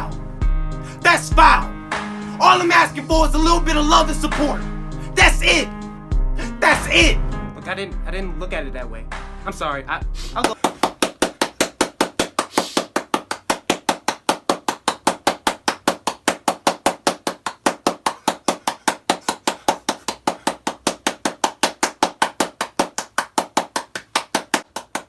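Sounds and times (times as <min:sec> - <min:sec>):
rapid even sharp knocks: 0:10.5 - 0:25.0.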